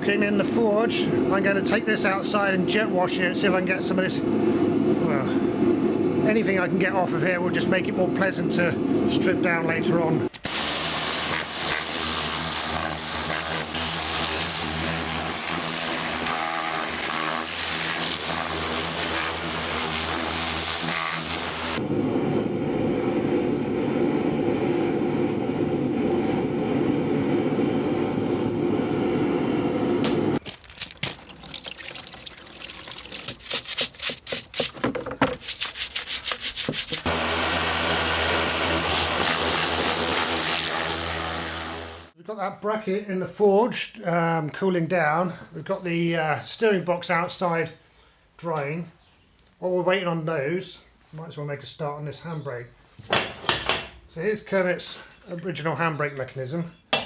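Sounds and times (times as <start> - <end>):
pressure washer motor hum: 10.5 - 21.8, 31.2 - 42.1
water spray hissing: 31.2 - 34.8, 35.4 - 37.2.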